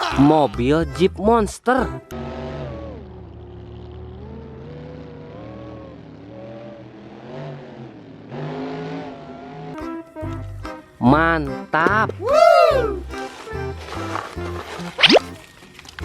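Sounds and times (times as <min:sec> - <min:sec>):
monster truck engine revving: 0:02.1 - 0:09.8.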